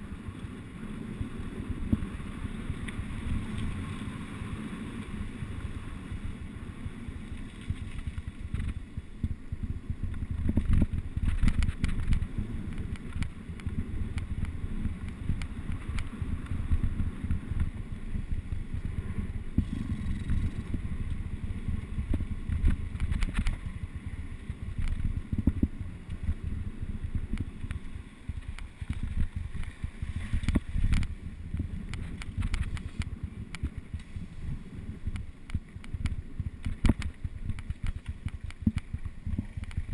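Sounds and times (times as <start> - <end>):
wind buffeting microphone: 0.0 - 39.9
bike knocks and rattles: 7.4 - 19.0, 19.6 - 34.1, 35.1 - 39.9.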